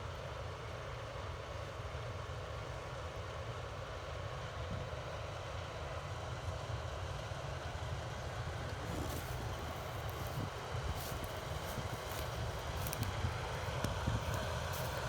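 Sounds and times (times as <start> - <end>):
tractor engine rumbling: 8.7 - 15.0
faint crackling: 8.8 - 15.0.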